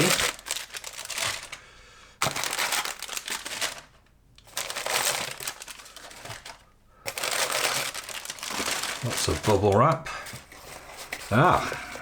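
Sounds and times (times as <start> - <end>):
packaging and bubble wrap crinkling: 0.0 - 1.6, 2.2 - 12.0.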